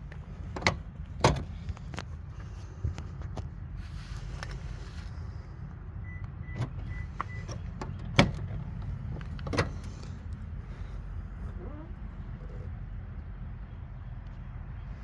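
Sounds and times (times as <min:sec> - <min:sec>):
car controls and doors clunking: 0:00.0 - 0:03.5, 0:06.0 - 0:12.7.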